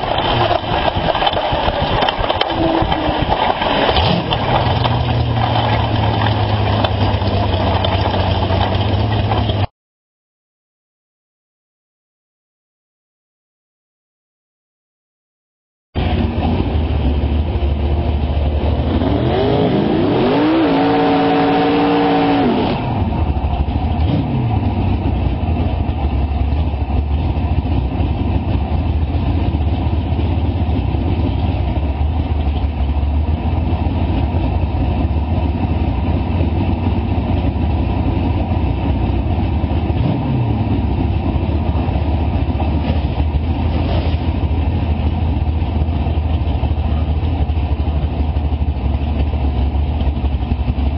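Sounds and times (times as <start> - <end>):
race car engine revving: 0.0 - 9.7, 16.0 - 25.4, 39.9 - 47.1.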